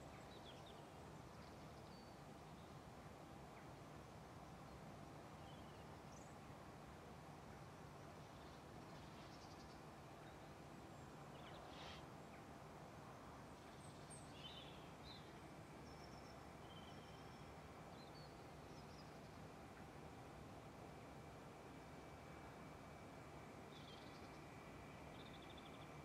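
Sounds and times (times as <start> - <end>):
low background hum: 0.0 - 26.0
faint bird chirps: 11.3 - 12.1, 13.7 - 19.4, 23.7 - 24.5, 25.1 - 26.0.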